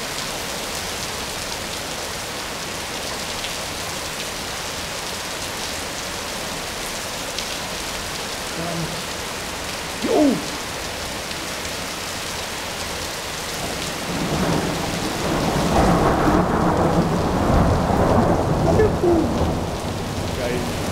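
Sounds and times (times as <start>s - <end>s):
heavy rain pouring: 0.0s - 20.9s
thunder rumbling: 13.6s - 20.9s.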